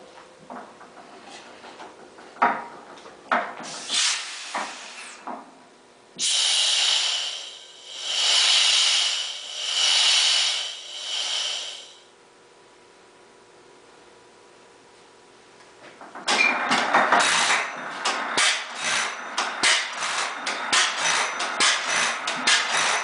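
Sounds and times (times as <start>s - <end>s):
loud hiss: 3.6s - 5.2s, 6.2s - 12.0s
sharp metal clanks: 16.3s - 23.0s.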